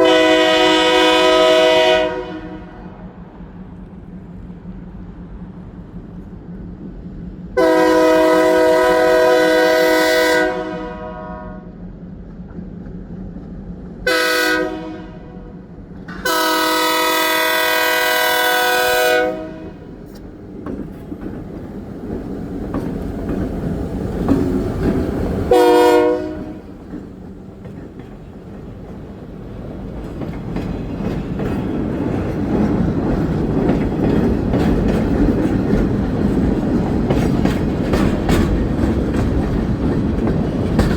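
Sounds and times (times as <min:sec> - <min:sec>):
train horn blasts: 0:00.0 - 0:03.0, 0:07.6 - 0:11.8, 0:14.0 - 0:20.0, 0:25.5 - 0:26.8
train rumbling on rails: 0:00.0 - 0:40.9.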